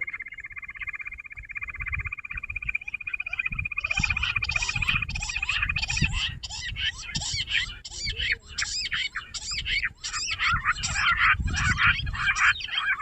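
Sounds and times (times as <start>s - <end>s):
quail chirping chorus: 0.0s - 13.0s.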